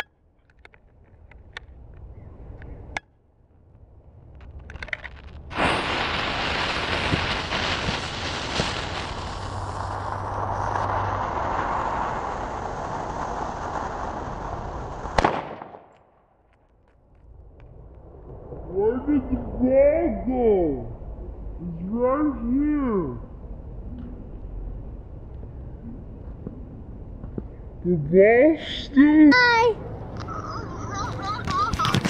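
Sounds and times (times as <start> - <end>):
firecracker crackles: 4.2 - 18.6, 30.2 - 32.0
firecracker hissing: 5.0 - 15.9
sharp pop: 15.1 - 16.1.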